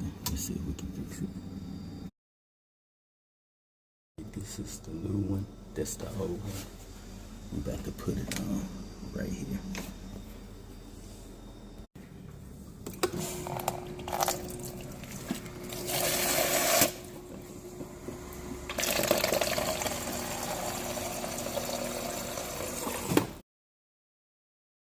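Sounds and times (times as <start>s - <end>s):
thin steady hum: 0.0s - 2.1s, 4.2s - 22.7s
water running through refrigerator: 12.7s - 23.4s.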